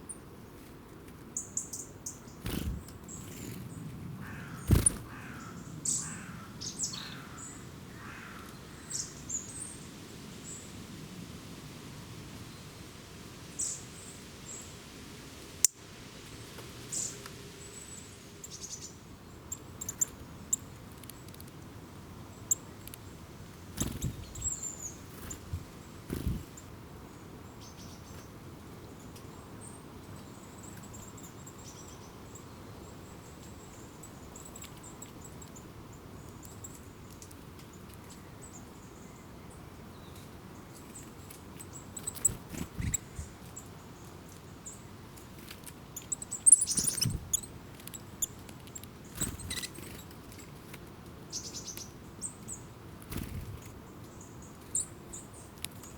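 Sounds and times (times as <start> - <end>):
background hiss: 0.0 - 55.9
small birds chirping: 1.3 - 10.7, 16.8 - 21.6, 22.2 - 55.9
thin high twittering: 46.0 - 47.5.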